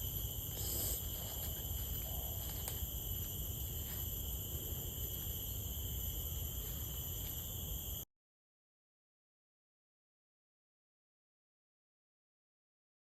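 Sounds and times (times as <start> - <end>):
tropical insects chorus: 0.0 - 8.0.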